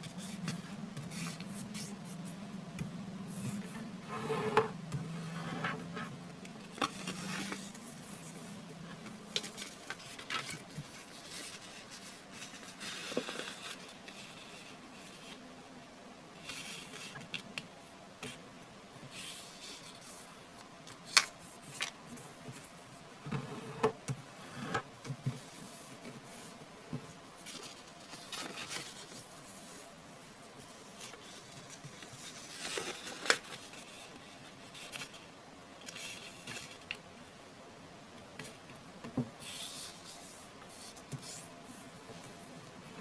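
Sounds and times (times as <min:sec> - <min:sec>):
paper rustling and crinkling: 0:06.6 - 0:15.4, 0:27.4 - 0:29.9, 0:30.5 - 0:37.0.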